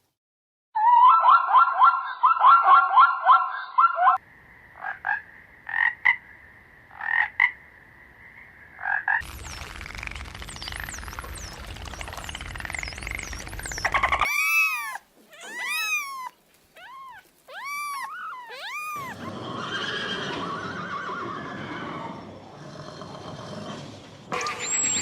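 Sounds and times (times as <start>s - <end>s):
animal calls rising and falling: 11.6s - 22.3s
rough noisy animal call: 13.3s - 24.2s.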